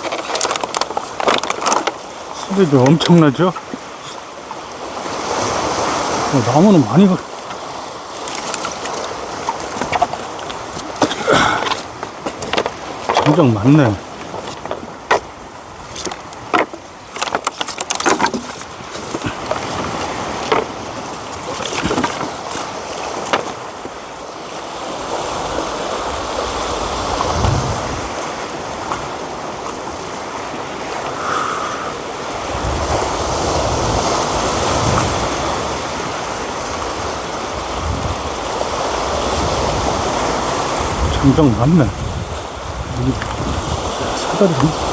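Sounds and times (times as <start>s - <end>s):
firewood knocking and cracking: 0.0s - 2.0s, 8.3s - 13.5s, 15.9s - 20.8s
deep rumbling gusts: 26.9s - 28.1s.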